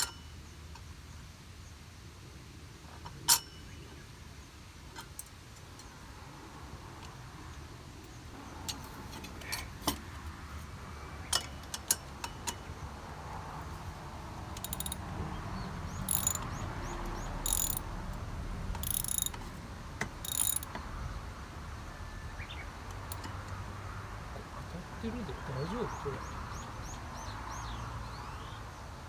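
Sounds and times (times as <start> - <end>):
ratchet wrench clicking: 14.4 - 15.2, 16.0 - 20.8
metal clinking on metal: 14.5 - 15.1, 16.1 - 16.5, 17.4 - 17.9, 18.8 - 19.5, 20.2 - 20.8.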